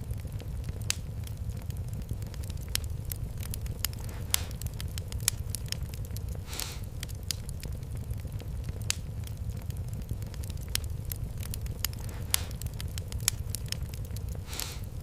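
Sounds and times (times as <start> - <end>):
low rumble of fire: 0.0 - 15.0
wood fire crackling and popping: 0.0 - 15.0
short hiss: 6.5 - 6.9.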